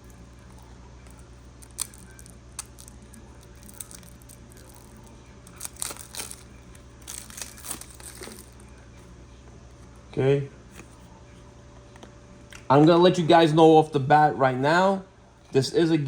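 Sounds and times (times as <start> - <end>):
plastic wrapping crinkling: 0.0 - 8.7.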